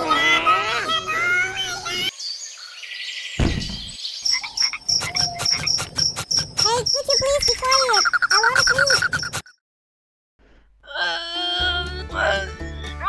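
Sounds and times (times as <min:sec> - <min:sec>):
low thud: 0:03.4 - 0:04.0
high pulsing chirps: 0:03.7 - 0:09.6
croaking calls: 0:04.2 - 0:09.5.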